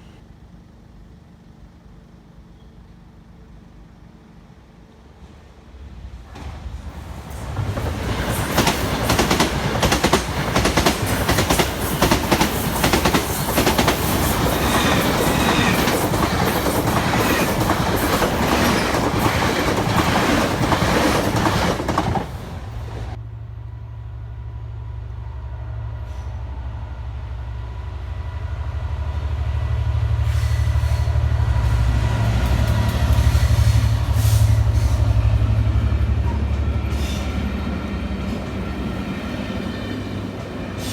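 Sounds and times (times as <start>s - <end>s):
low train hum and rumble: 0.0s - 40.9s
train wheels clattering over rail joints: 6.4s - 23.2s.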